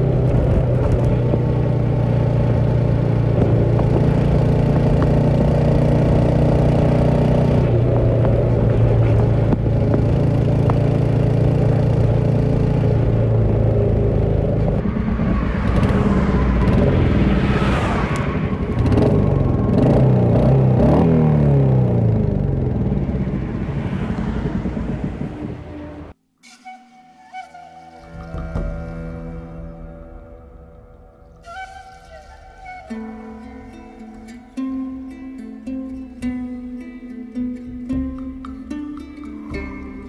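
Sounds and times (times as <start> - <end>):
motorcycle engine revving: 0.0 - 26.2.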